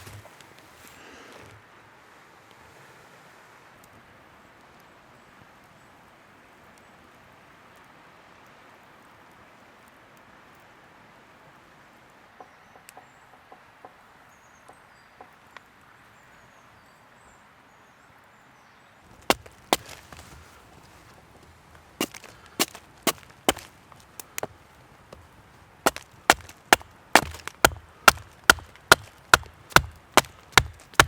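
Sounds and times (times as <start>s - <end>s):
axe chopping wood: 0.0s - 0.3s, 19.2s - 20.5s, 22.0s - 25.3s, 25.9s - 31.0s
small knocks: 0.0s - 0.4s, 19.1s - 25.3s, 25.9s - 31.0s
outdoor hiss: 0.0s - 12.4s, 18.9s - 30.8s.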